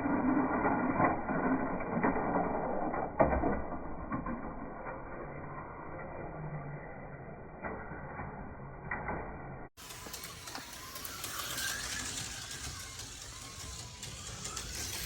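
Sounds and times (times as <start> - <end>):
cars rattling in track slot: 9.8 - 15.0
slot car motors whirring: 9.8 - 15.0.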